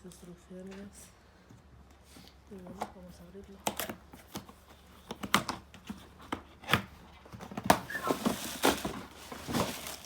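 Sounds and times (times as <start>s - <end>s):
packaging rustling: 7.7s - 10.0s.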